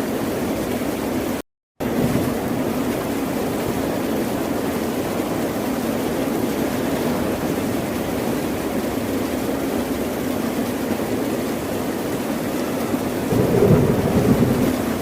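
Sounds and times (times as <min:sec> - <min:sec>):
ocean surf rushing: 0:06.0 - 0:09.4, 0:12.9 - 0:15.0.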